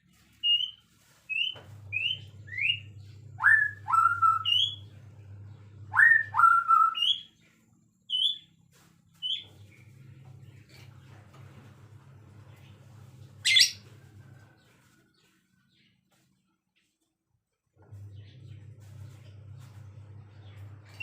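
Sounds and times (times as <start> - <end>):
faint low hum: 0.0 - 21.0
songbird whistling song: 0.4 - 4.9, 5.9 - 7.4, 8.1 - 8.5, 9.2 - 9.5, 13.4 - 13.8.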